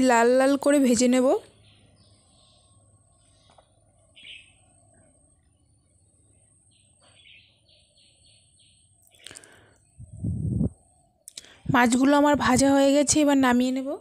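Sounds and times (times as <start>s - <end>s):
faint bird chirps: 1.4s - 12.2s.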